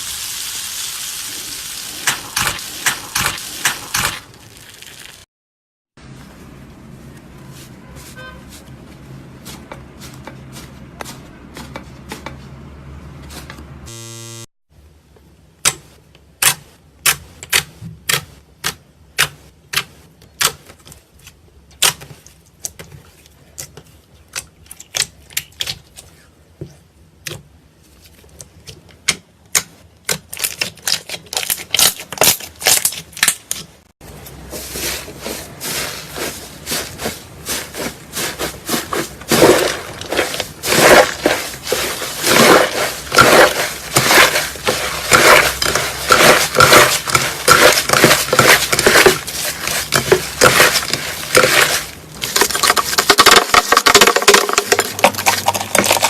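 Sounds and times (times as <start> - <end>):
slime crackling and squishing: 1.3 - 5.3, 30.0 - 33.7, 34.3 - 56.0.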